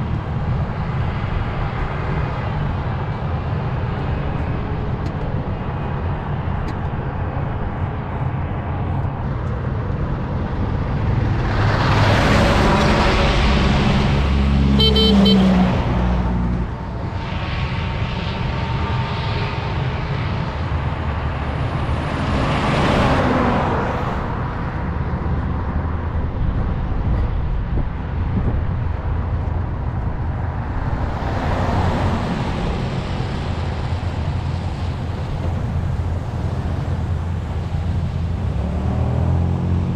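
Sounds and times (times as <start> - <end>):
low traffic rumble: 0.0 - 39.9
vehicles passing close by: 0.0 - 39.9
car horn honk: 14.7 - 15.9.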